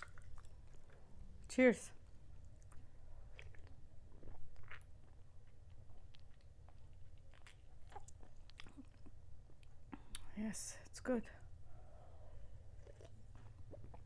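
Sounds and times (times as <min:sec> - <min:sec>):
chewing and lip smacks: 0:00.0 - 0:01.1, 0:02.3 - 0:10.4, 0:12.7 - 0:14.0
faint low hum: 0:00.0 - 0:14.0.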